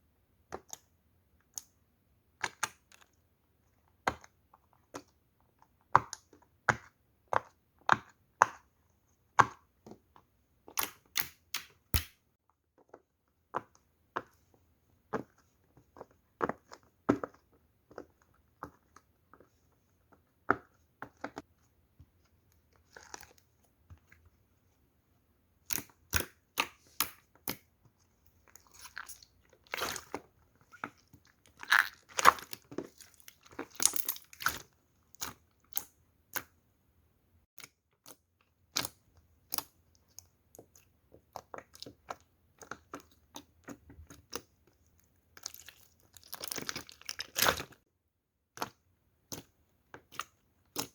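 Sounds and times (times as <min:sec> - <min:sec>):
slime popping and squelching: 0:28.5 - 0:35.9, 0:45.3 - 0:47.8.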